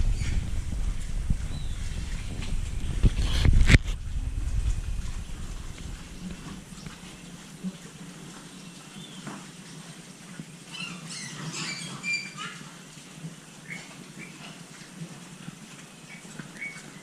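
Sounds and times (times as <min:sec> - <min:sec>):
piglets squealing: 0:10.7 - 0:12.6.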